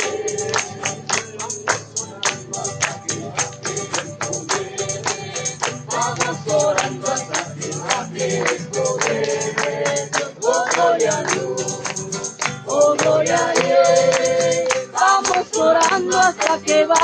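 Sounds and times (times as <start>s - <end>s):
sharp percussion beat: 0.0s - 17.0s
voices singing: 0.0s - 17.0s
worship music: 0.0s - 17.0s.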